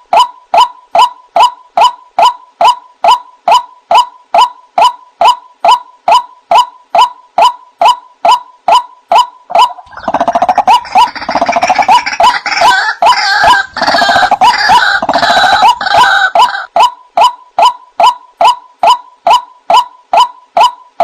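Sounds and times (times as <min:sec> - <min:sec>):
waterhen calling: 0:08.3 - 0:20.8.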